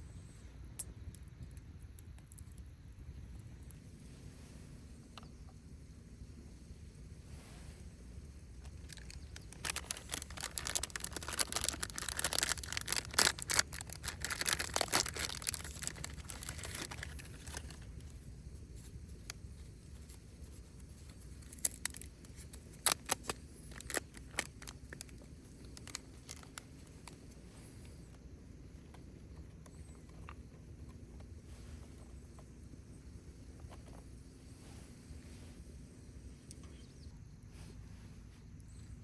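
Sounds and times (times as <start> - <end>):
rustling and crinkling handling: 8.6 - 28.2.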